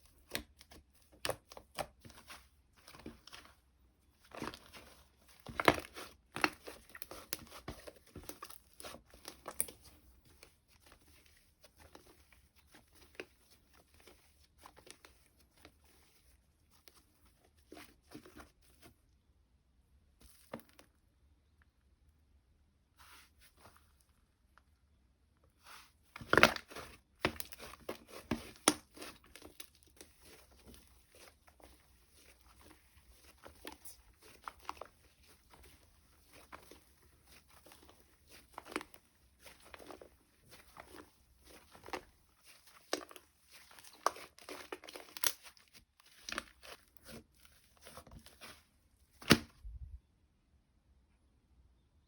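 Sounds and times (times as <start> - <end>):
slime squishing and popping: 4.2 - 11.1, 26.2 - 48.6.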